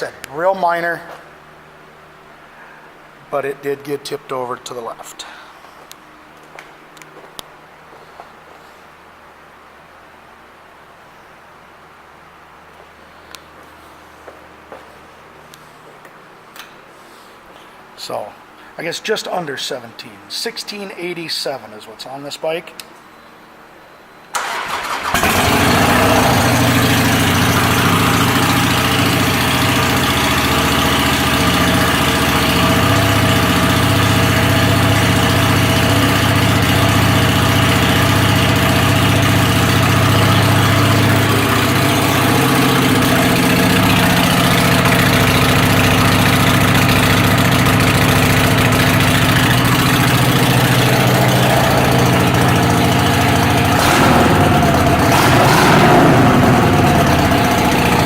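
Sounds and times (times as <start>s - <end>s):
motorcycle starter cranking: 24.4s - 30.1s, 32.7s - 58.0s
motorcycle engine idling loudly: 25.1s - 58.0s.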